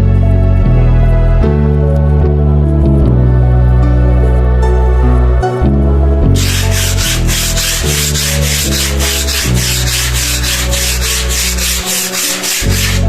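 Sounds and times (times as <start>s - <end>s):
sanding a wall: 6.4s - 13.0s.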